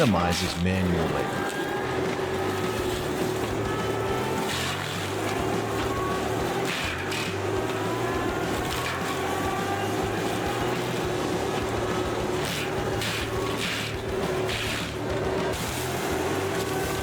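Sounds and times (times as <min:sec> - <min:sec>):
debarking machine humming: 0:00.0 - 0:04.4.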